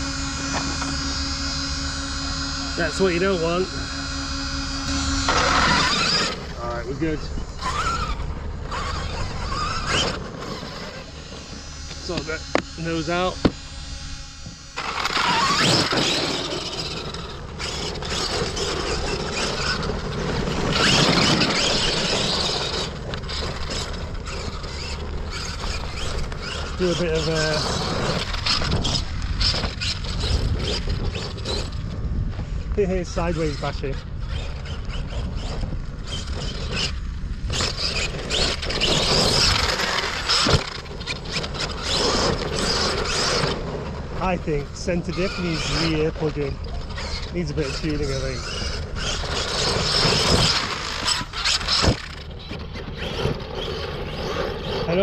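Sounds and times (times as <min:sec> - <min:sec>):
rc car motor bursts: 0:00.0 - 0:55.0
tyres scrabbling over gravel: 0:14.8 - 0:31.8, 0:33.0 - 0:55.0.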